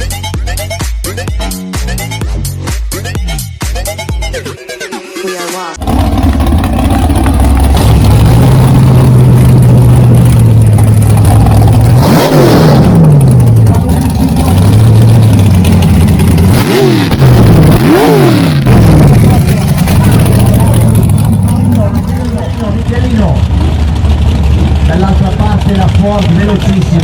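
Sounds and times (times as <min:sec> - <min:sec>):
engine revving: 0:05.8 - 0:27.0
hot rod engine idling: 0:05.8 - 0:27.0.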